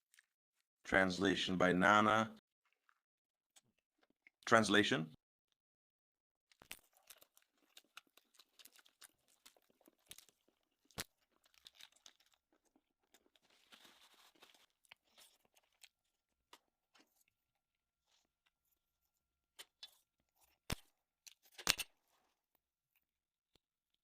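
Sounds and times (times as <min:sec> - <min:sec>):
crunching and chewing food: 0:00.0 - 0:00.7, 0:06.5 - 0:24.0.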